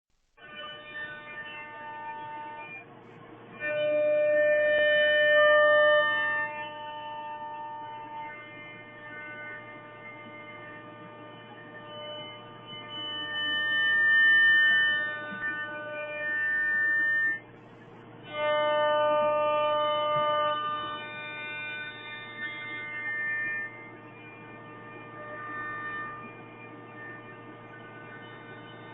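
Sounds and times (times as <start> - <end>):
whining stepper motors: 0.5 - 28.9
electrical hum: 1.6 - 28.9.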